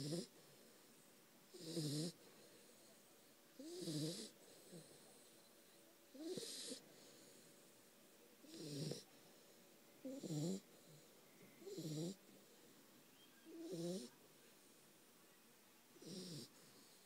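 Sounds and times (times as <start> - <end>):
dog snoring: 0.0 - 0.5, 1.5 - 2.3, 3.6 - 5.4, 6.1 - 7.5, 8.4 - 9.2, 10.0 - 12.2, 13.5 - 14.1, 16.0 - 17.0.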